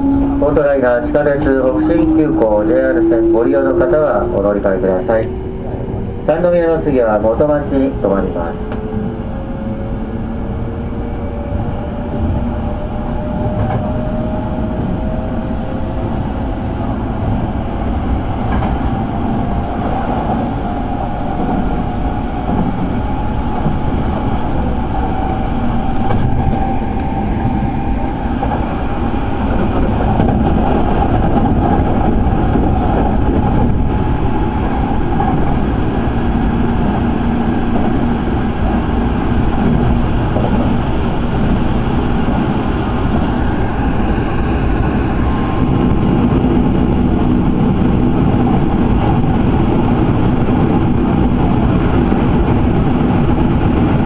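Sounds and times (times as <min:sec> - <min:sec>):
wheel and rail rumble: 0:00.0 - 0:54.0.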